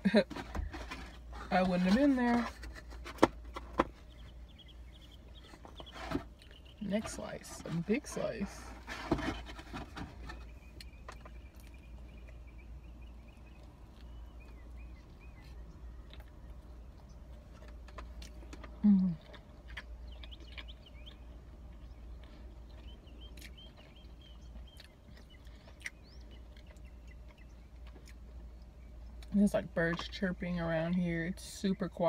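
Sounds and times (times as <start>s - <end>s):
birds chirping faintly: 0.1s - 32.0s
chewing and mouth clicks: 13.2s - 29.4s.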